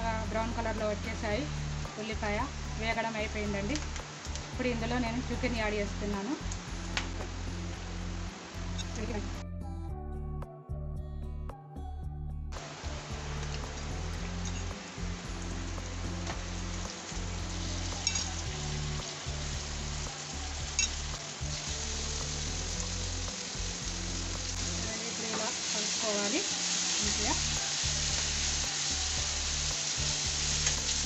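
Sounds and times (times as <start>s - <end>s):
meat sizzling in a frying pan: 12.6s - 31.0s.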